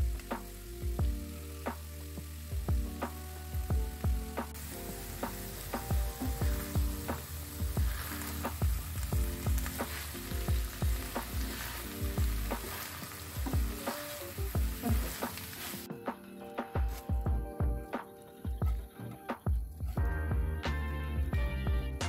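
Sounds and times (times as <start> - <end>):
stir-fry sizzling in a frying pan: 0.0 - 15.9.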